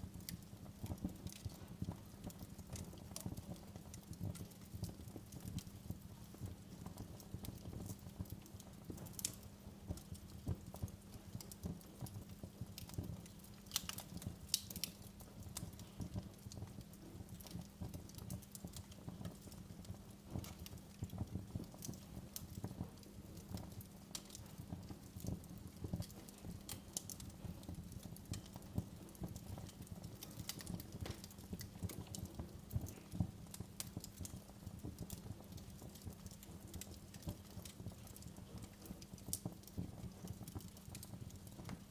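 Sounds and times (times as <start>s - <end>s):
low rumble of flames: 0.0s - 41.9s
wood fire crackling and popping: 0.0s - 41.9s.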